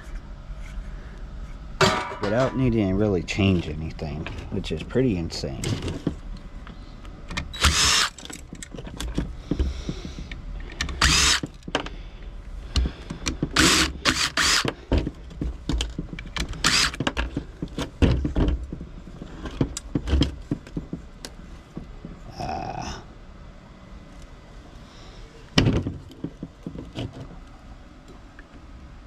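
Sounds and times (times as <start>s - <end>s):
cordless power drill: 7.6s - 8.2s, 10.9s - 11.5s, 13.5s - 14.7s, 16.6s - 17.0s.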